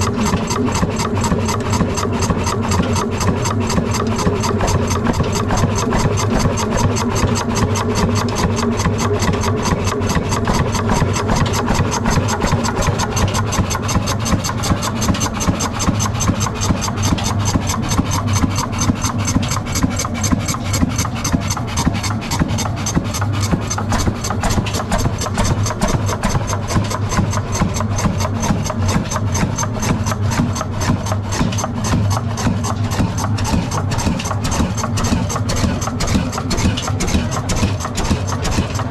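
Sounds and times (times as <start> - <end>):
diesel engine running: 0.0 - 38.9
flour mill rasping: 0.0 - 38.9.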